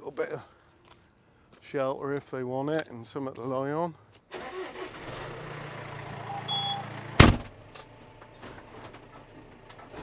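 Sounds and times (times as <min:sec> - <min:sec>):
vehicle engine idling: 0:05.0 - 0:08.2
loud bang: 0:07.2 - 0:07.5.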